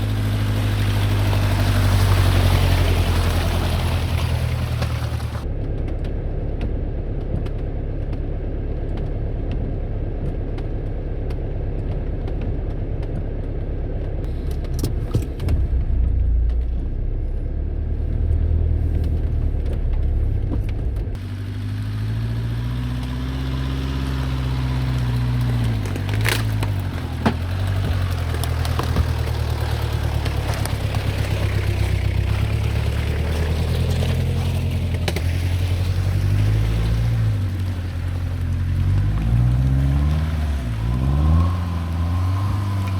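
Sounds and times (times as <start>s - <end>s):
diesel engine revving: 0.0s - 5.5s, 14.3s - 42.9s.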